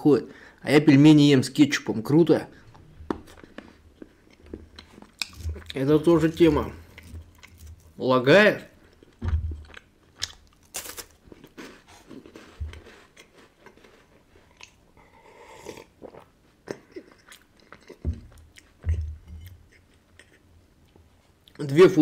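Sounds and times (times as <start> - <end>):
wafer crunching and chewing: 2.7 - 8.0, 8.8 - 15.0, 16.0 - 21.6.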